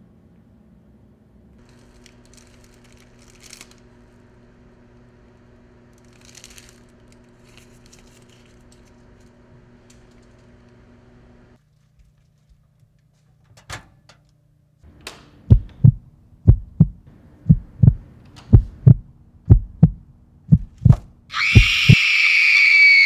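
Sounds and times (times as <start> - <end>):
faint hum: 14.3 - 22.0
heartbeat thumps: 15.5 - 22.0
woman screaming: 21.3 - 23.0.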